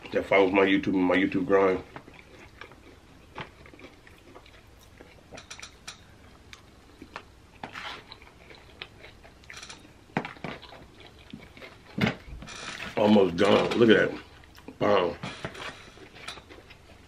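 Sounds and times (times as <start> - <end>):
chewing and crunching chips: 0.0 - 17.0.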